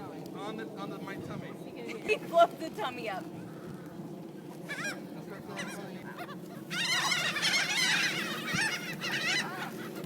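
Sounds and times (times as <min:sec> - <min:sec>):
seagulls squawking: 0:04.6 - 0:10.0.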